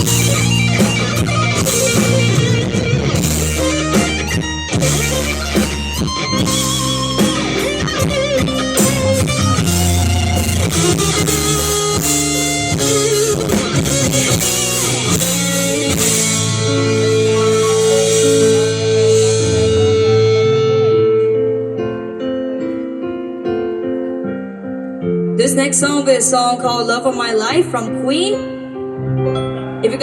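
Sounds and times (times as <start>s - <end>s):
drum kit: 0.0s - 21.2s
bass guitar: 0.0s - 22.8s
electric guitar solo: 0.0s - 23.1s.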